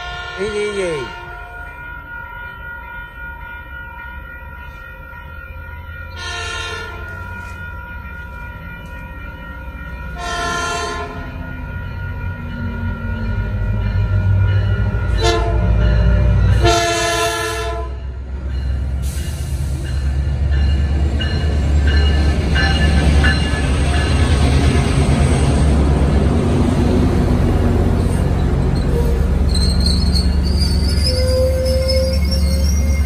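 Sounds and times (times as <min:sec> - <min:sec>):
locomotive horn blasts: 0:00.0 - 0:01.6, 0:06.2 - 0:07.1, 0:10.2 - 0:11.2, 0:15.2 - 0:15.8, 0:16.6 - 0:18.0
wheels rumbling on rails: 0:00.0 - 0:33.0.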